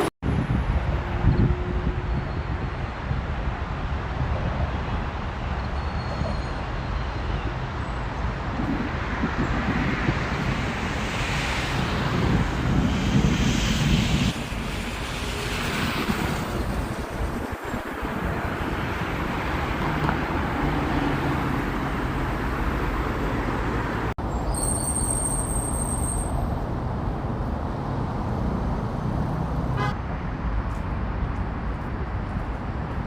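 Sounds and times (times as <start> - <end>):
wind blowing across microphone: 0.0 - 24.5.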